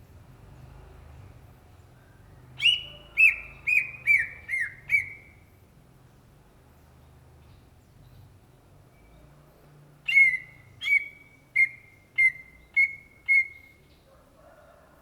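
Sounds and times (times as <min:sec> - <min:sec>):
bird whistling song: 0:02.6 - 0:05.4, 0:10.0 - 0:13.9.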